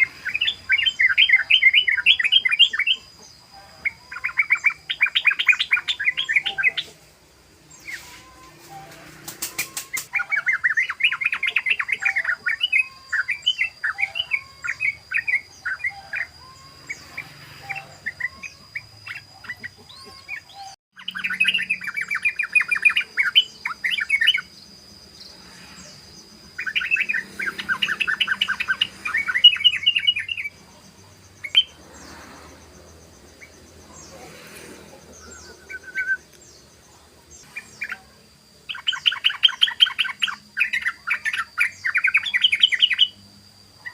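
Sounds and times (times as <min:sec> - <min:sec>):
bird singing chattering notes: 0:00.0 - 0:07.0, 0:07.6 - 0:32.1, 0:38.7 - 0:43.2
faint high whine: 0:00.0 - 0:43.9.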